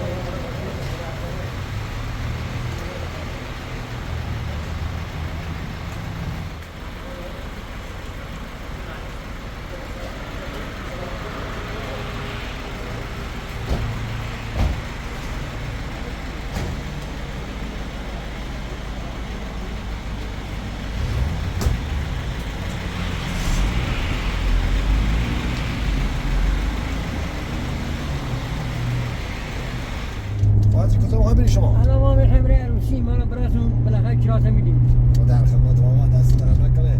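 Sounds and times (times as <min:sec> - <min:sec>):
vehicle engine and road rumble: 0:00.0 - 0:36.9
knocks and bumps: 0:13.6 - 0:15.0.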